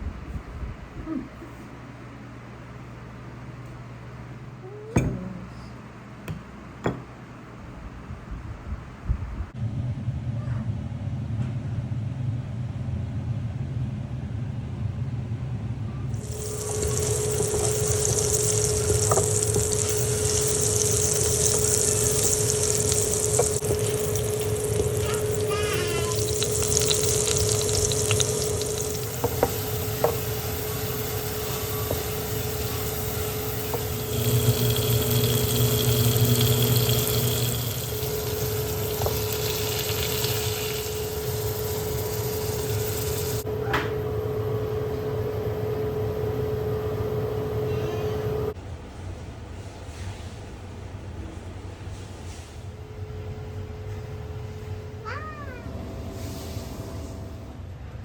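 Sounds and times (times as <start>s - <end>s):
dishes clinking: 4.9s - 5.5s, 6.3s - 7.2s
water running into a sink: 16.2s - 43.4s.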